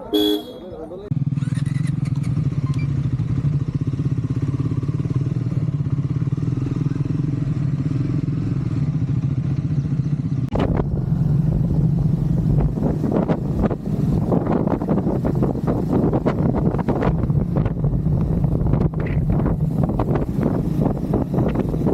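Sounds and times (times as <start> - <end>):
motorcycle engine running: 0.0 - 21.9
wind buffeting microphone: 10.5 - 21.9.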